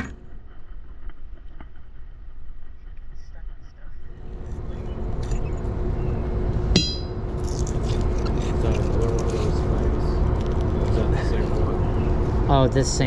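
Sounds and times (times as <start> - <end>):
faint hum: 0.0 - 13.0
low rumble: 4.1 - 13.0
metal-on-metal clink: 6.8 - 7.2.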